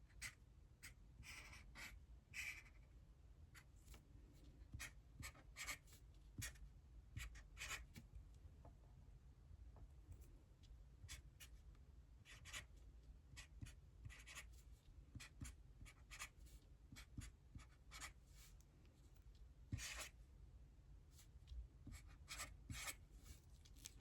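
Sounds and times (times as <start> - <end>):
pen scratching handwriting: 12.3 - 12.7, 13.4 - 14.5, 19.7 - 20.1, 21.9 - 23.0.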